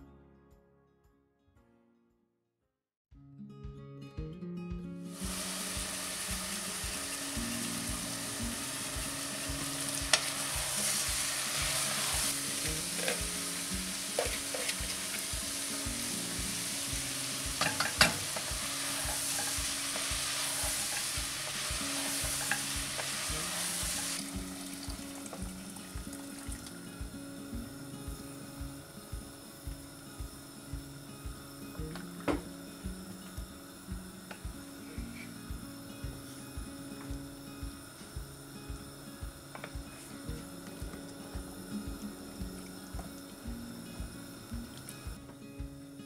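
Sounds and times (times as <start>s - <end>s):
acoustic guitar music: 0.0s - 2.1s, 3.1s - 46.0s
food sizzling in a pot: 5.1s - 46.0s
water pouring: 17.6s - 26.8s.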